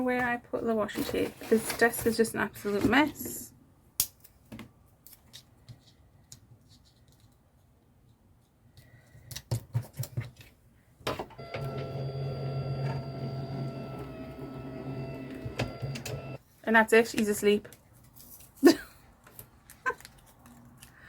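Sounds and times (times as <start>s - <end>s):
clicks and rustles of handling: 4.0s - 10.6s
small electric machine humming: 11.4s - 16.4s.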